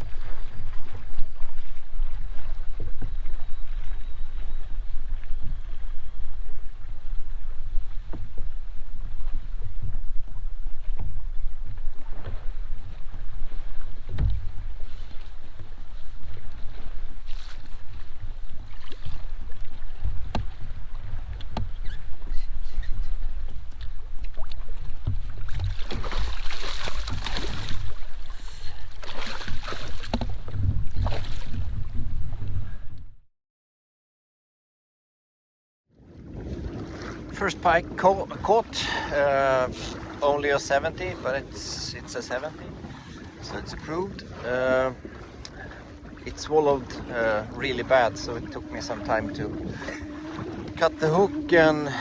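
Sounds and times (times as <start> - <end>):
kayak knocking on choppy water: 0.0 - 33.0, 36.1 - 52.0
wind buffeting microphone: 0.0 - 33.2, 36.0 - 52.0
knocks against kayak hull: 14.0 - 14.8, 20.0 - 21.9, 24.4 - 27.9, 29.0 - 31.4.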